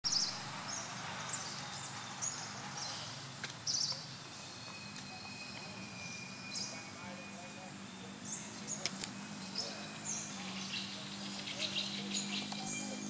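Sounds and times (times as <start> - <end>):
small birds chirping: 0.0 - 13.0
faint steady high tone: 4.2 - 10.5.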